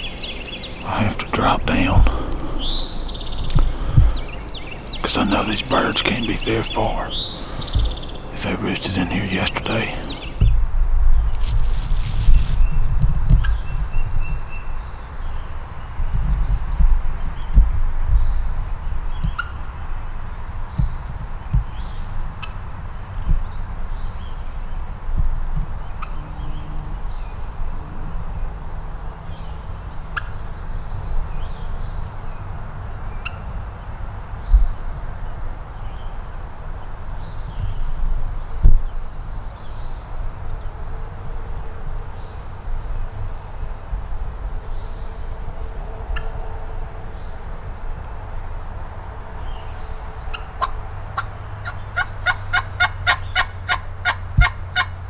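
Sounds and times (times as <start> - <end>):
wild turkey calls: 0.8 - 10.6, 50.3 - 54.9
steady low rumble: 0.9 - 14.2.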